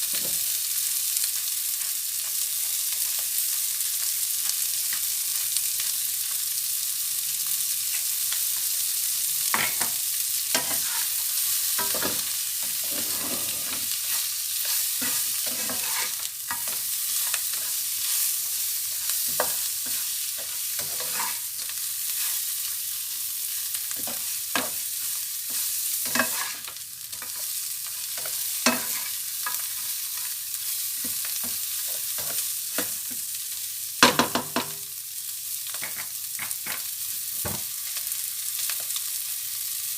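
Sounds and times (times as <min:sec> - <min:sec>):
food sizzling in a pan: 0:00.0 - 0:39.9
utensil scraping a pan: 0:11.8 - 0:16.8, 0:20.8 - 0:21.4, 0:26.1 - 0:26.6.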